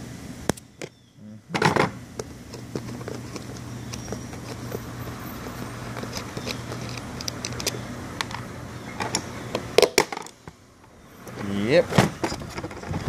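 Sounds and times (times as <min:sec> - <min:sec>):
steady low hum: 0:00.0 - 0:13.0
pliers clicking and scraping: 0:02.5 - 0:08.4.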